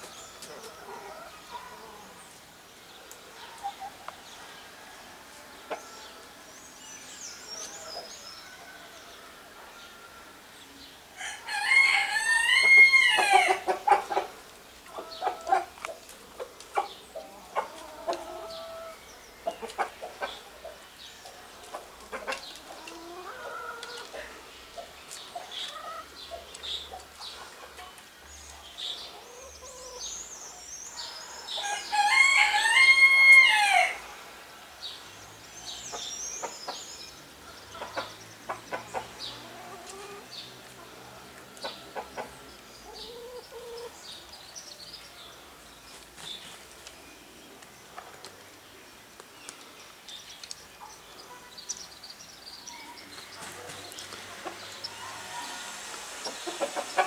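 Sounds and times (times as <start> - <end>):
bird chirps and clucks: 3.0 - 4.6, 12.6 - 32.0, 35.6 - 45.1, 49.5 - 57.0.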